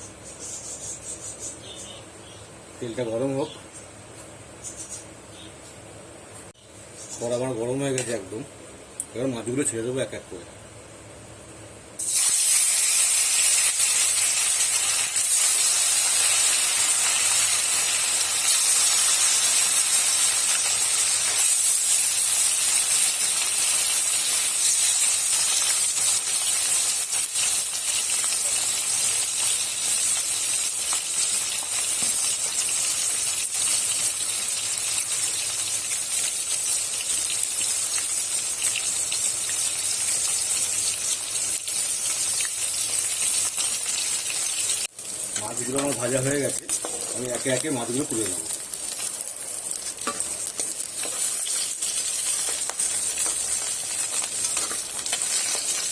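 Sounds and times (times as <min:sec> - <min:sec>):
fish sizzling in hot oil: 0:12.0 - 0:55.9.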